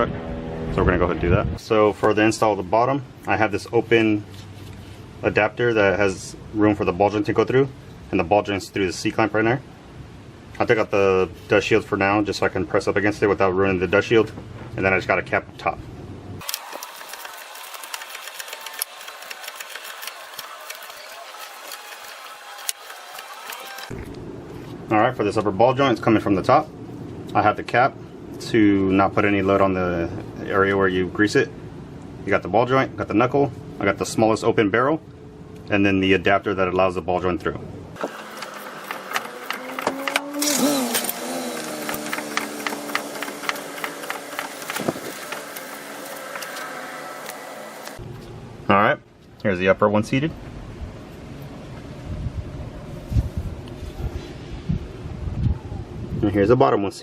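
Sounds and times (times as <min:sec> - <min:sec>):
power tool mechanical clatter: 0:16.4 - 0:24.0, 0:38.0 - 0:48.0.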